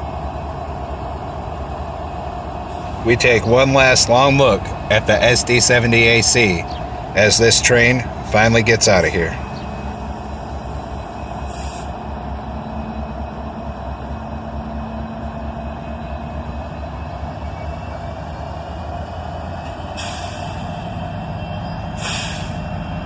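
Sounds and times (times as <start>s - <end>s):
locomotive engines rumbling: 0.0s - 23.0s
brief air hisses: 11.5s - 12.0s, 20.0s - 20.9s, 22.0s - 22.7s.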